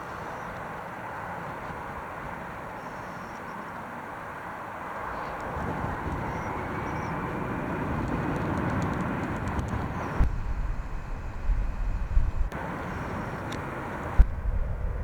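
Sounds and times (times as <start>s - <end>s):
jet engine noise: 0.0s - 15.0s
wind buffeting microphone: 5.0s - 15.0s.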